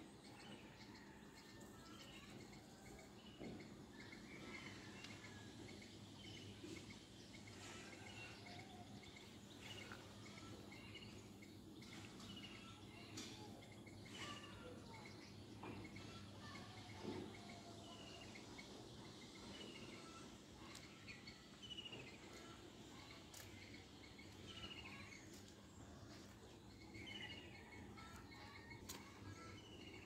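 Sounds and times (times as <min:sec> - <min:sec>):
low steady background hum: 0:00.0 - 0:30.0.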